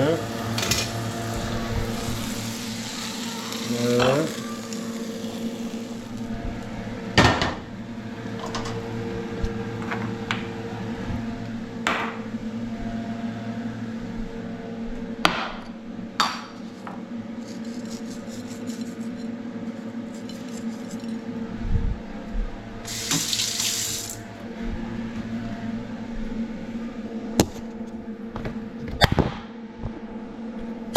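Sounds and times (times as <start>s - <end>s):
water rushing hiss: 0.0s - 6.2s, 22.9s - 24.3s
steady hum: 0.0s - 30.9s
dishes and utensils clinking: 20.1s - 21.2s.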